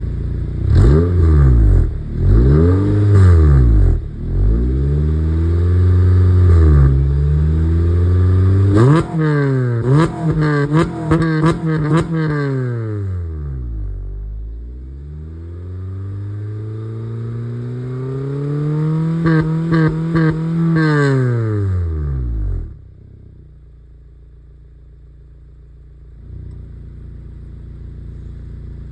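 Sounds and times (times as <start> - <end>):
car engine revving: 0.0 - 22.8.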